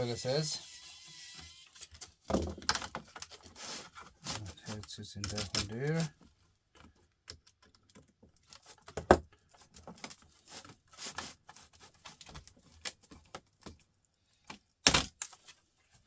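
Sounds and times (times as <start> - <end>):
clicks and rattles of tools: 4.3 - 6.1.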